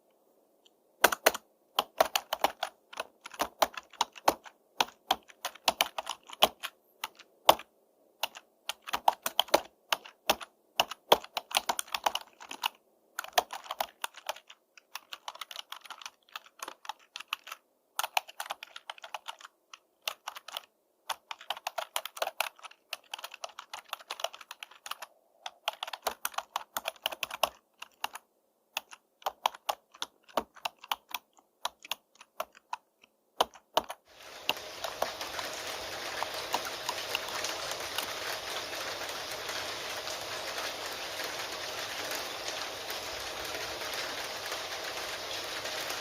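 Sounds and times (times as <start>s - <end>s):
keyboard typing: 1.0s - 46.0s
steady rain: 34.1s - 46.0s.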